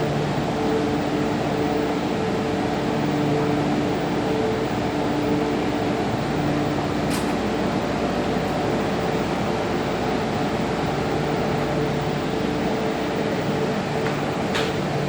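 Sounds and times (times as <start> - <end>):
metro train rumble: 0.0 - 15.0
brief high click: 7.1 - 7.4.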